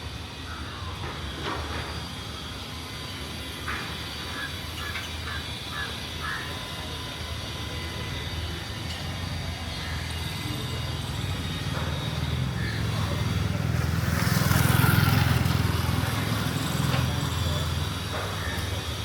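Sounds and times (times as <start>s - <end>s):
street traffic rumbling: 0.0s - 19.0s
vehicle approaching: 9.1s - 19.0s.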